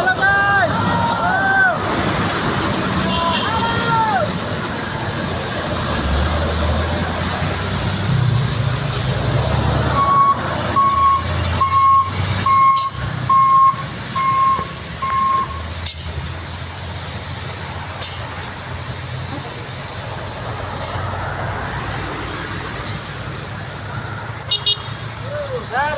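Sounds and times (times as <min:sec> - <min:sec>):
truck diesel engine running: 0:04.2 - 0:25.9
reversing alarm beeping: 0:09.9 - 0:15.7, 0:23.8 - 0:24.4.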